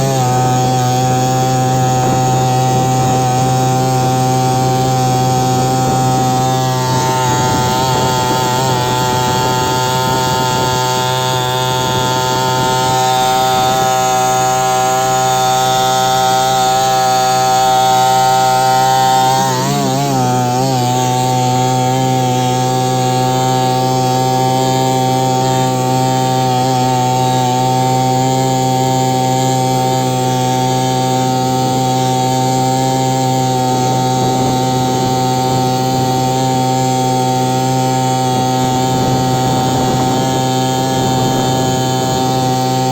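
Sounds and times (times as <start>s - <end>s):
outboard motor running: 0.0s - 42.9s.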